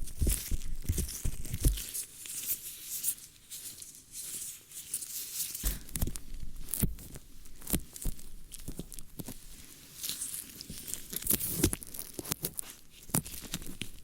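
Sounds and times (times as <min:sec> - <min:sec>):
scratching and rustling on microphone: 0:00.0 - 0:14.0
soft thumps on microphone: 0:05.6 - 0:07.1.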